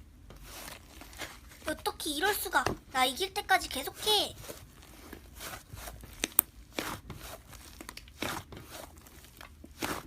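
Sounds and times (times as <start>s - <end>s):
slime squishing and crackling: 0.4s - 2.5s, 4.4s - 10.0s.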